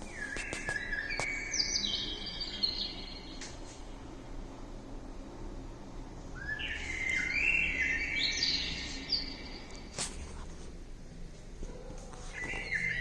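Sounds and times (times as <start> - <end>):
small birds chirping: 0.0 - 3.6, 6.3 - 10.0, 12.3 - 13.0.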